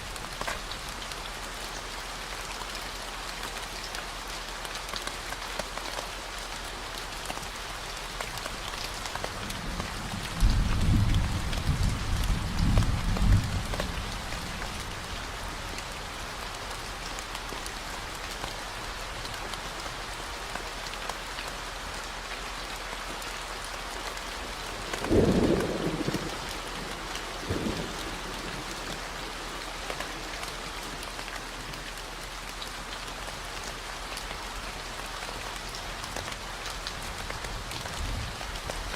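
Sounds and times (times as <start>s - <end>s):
steady rain: 0.0s - 38.9s
thunder rumbling: 25.1s - 28.7s.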